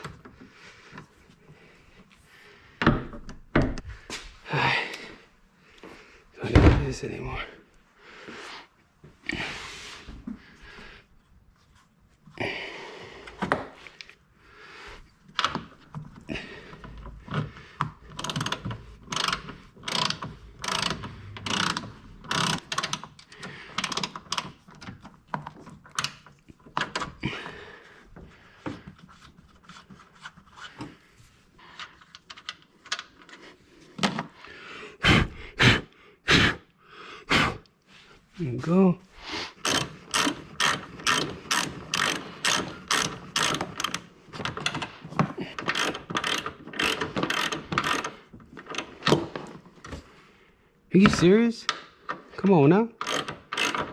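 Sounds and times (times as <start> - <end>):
ratchet wrench clicking: 18.1 - 24.5, 39.6 - 44.1, 45.6 - 48.8, 53.0 - 53.9.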